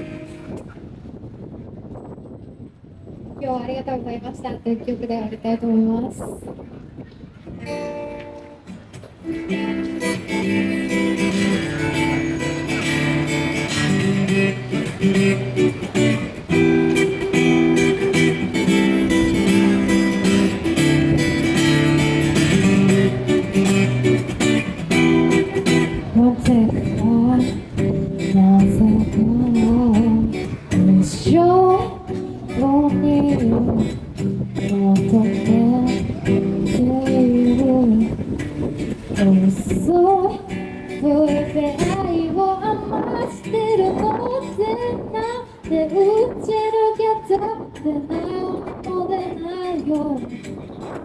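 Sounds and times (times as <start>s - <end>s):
acoustic guitar strumming: 0.0s - 0.6s, 7.6s - 51.0s
woman singing: 25.2s - 34.0s, 34.6s - 38.2s, 39.1s - 50.5s.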